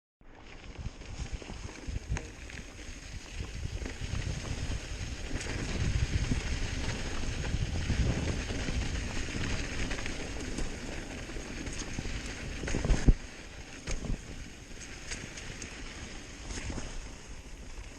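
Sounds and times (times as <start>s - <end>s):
mountain bike rattling on dirt: 0.3s - 17.9s
wind buffeting microphone: 0.7s - 14.8s.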